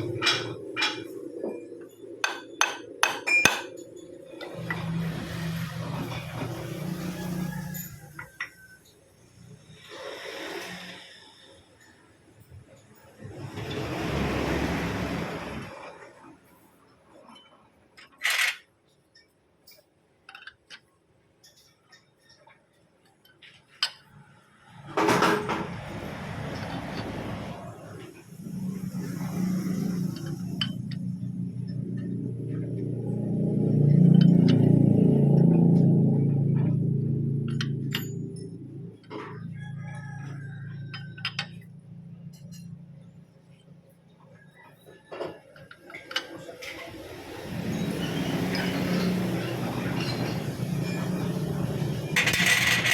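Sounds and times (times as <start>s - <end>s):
metal tools clinking: 2.0s - 4.9s.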